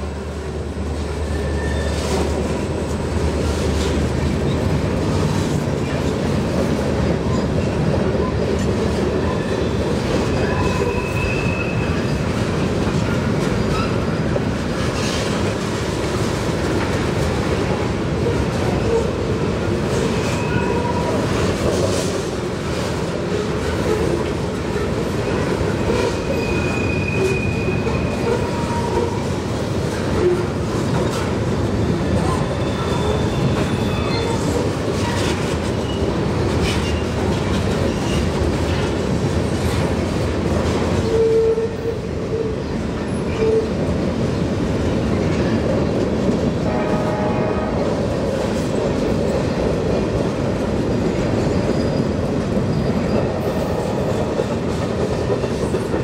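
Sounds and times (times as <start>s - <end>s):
freight train rumbling: 0.0s - 56.0s
steel wheels clattering on rails: 0.8s - 56.0s
short wheel squeaks: 1.2s - 2.2s, 51.5s - 53.2s.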